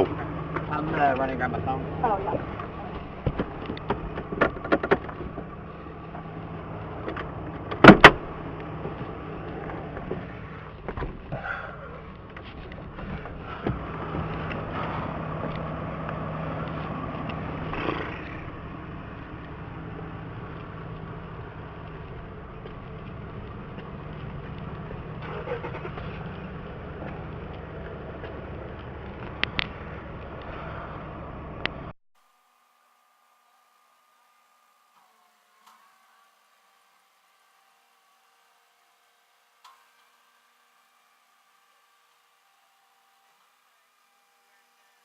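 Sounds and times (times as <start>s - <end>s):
low engine hum: 0.0s - 45.0s
vehicle door shutting: 2.3s - 5.6s, 7.0s - 11.8s, 25.2s - 26.3s.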